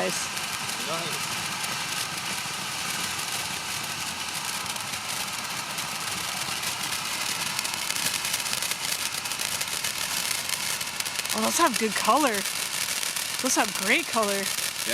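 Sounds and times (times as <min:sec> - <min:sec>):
fireworks crackling: 0:00.0 - 0:14.9
fireworks hissing: 0:00.0 - 0:14.9.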